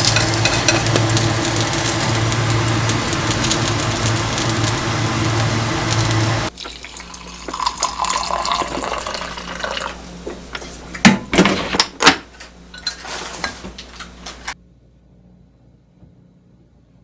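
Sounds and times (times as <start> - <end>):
dishes and utensils clinking: 0.0 - 1.8, 6.6 - 14.6
steady rushing noise: 0.0 - 6.5
water running in sink: 0.0 - 11.4.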